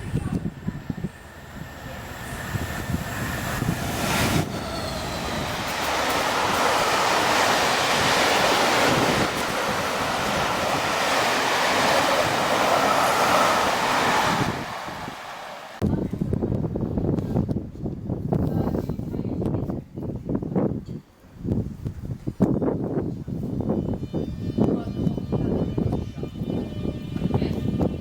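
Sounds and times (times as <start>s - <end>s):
train passing: 0.0s - 15.9s.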